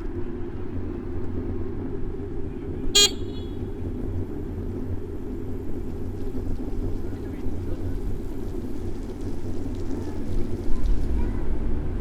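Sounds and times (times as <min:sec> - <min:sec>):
city traffic rumbling: 0:00.0 - 0:12.0
high horn toot: 0:03.0 - 0:03.7.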